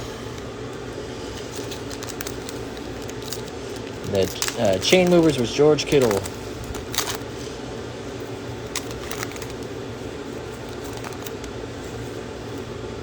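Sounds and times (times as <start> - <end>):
fan hum: 0.0 - 13.0
trading cards clicking: 1.6 - 7.2.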